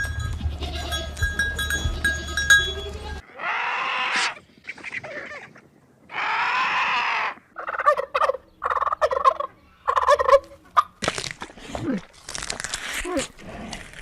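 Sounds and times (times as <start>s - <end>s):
turkeys gobbling: 7.6s - 11.0s.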